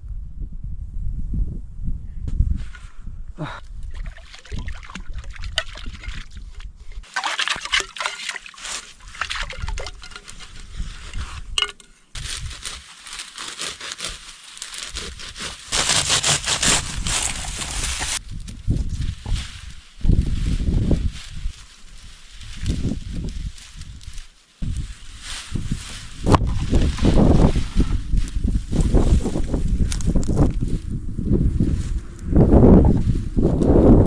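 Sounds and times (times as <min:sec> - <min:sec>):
water trickling and sloshing: 0:03.9 - 0:10.4.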